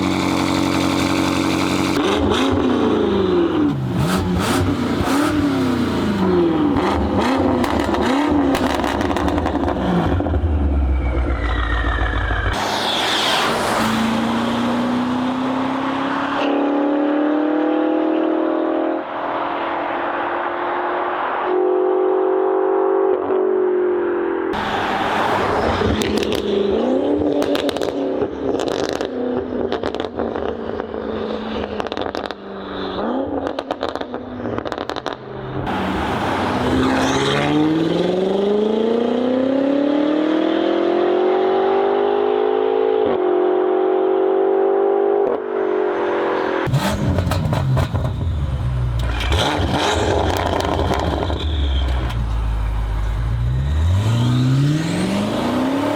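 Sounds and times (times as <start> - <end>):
car engine revving: 0.0 - 22.2, 24.6 - 55.9
exhaust pops and crackles: 27.3 - 30.8, 31.8 - 32.4, 33.4 - 35.3, 46.7 - 53.1
engine pulling under acceleration: 46.7 - 55.9.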